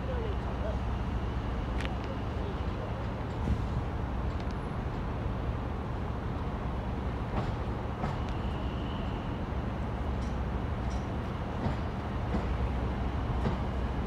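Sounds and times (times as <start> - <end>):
train rumble: 0.0 - 14.0
train clicks: 4.2 - 5.0, 7.2 - 8.6, 10.0 - 14.0.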